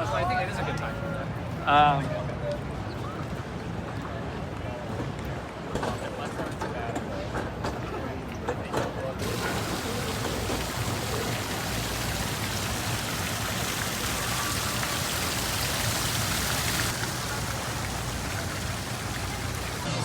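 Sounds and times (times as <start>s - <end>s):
steady rushing hiss: 9.2s - 20.0s.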